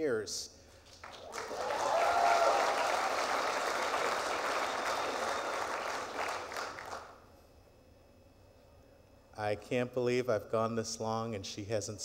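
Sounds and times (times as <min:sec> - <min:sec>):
audience applauding: 0:00.8 - 0:07.2
audience cheering: 0:01.1 - 0:07.0.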